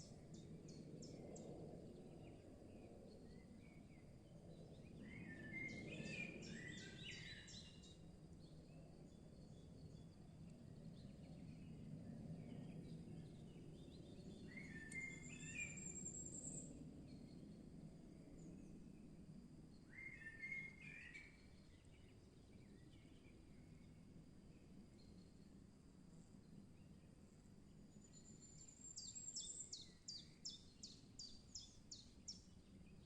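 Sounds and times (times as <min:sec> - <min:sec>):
faint birdsong: 0:00.0 - 0:33.0.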